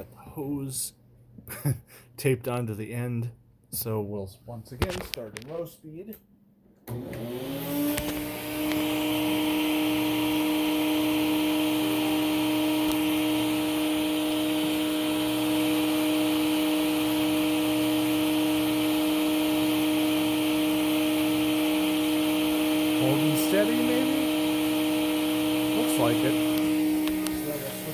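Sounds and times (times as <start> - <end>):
canister vacuum running: 6.8 - 27.9.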